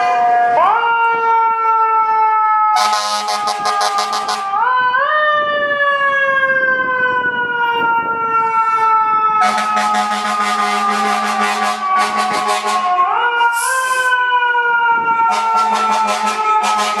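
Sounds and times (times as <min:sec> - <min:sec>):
fire engine siren wailing: 0:00.0 - 0:17.0
buzzing horn blast: 0:02.8 - 0:04.5, 0:09.4 - 0:13.0, 0:15.3 - 0:17.0.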